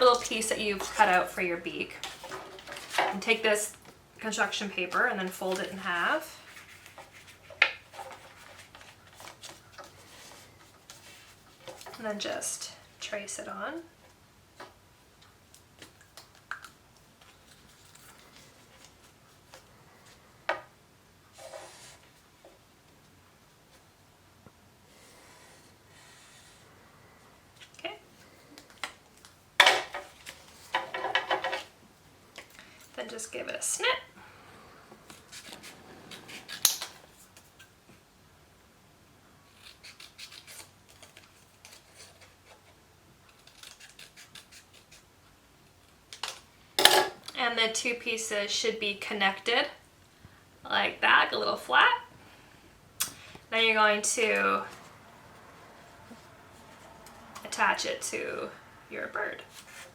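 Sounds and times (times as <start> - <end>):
scissors snipping paper: 39.5 - 42.4, 43.3 - 45.0.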